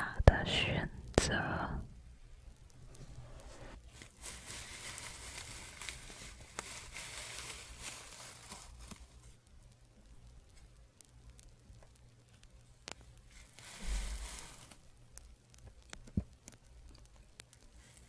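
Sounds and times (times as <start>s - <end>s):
soft scratching rustle: 2.6s - 9.8s, 12.3s - 18.0s.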